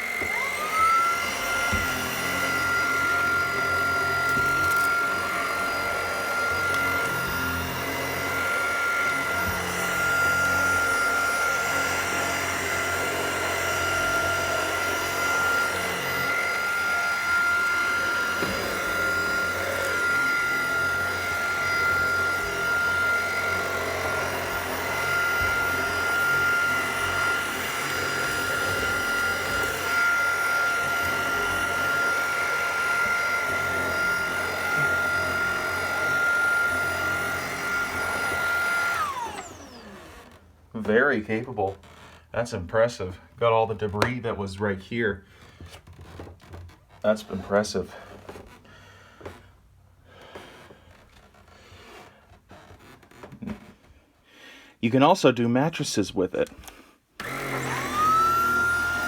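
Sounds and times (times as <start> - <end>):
vacuum cleaner motor whine: 0.0 - 41.2, 41.8 - 42.1, 56.6 - 59.0.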